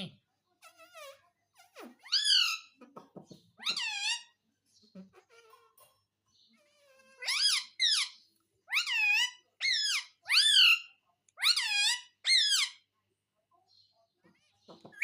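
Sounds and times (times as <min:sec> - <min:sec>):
parrot calling: 0:02.0 - 0:02.8, 0:03.6 - 0:04.4, 0:07.2 - 0:12.9.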